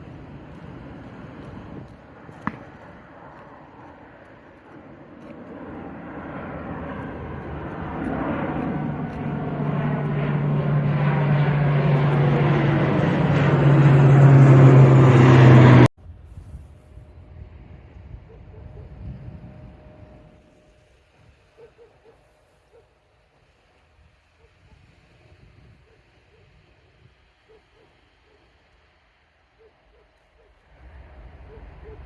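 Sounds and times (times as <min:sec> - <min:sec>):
airliner engines at takeoff: 0:00.0 - 0:32.0.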